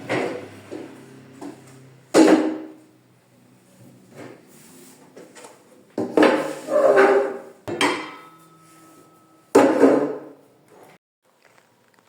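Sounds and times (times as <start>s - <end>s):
pots and dishes clattering: 6.0s - 10.4s
sharp knock with metallic ring: 7.7s - 9.8s.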